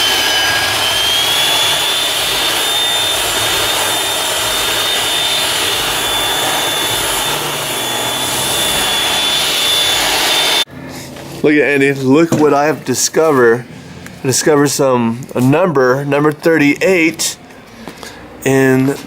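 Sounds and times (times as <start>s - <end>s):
power sander whining: 0.0s - 10.7s.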